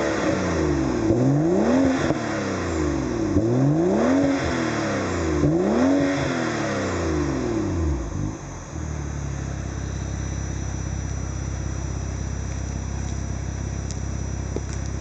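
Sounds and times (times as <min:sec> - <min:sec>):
car engine idling: 0:06.6 - 0:15.0.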